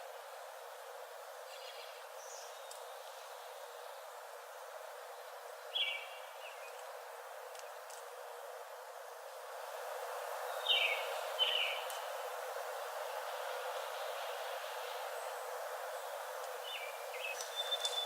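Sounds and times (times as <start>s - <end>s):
steady background hiss: 0.0s - 18.0s
bird chirps: 16.7s - 18.0s.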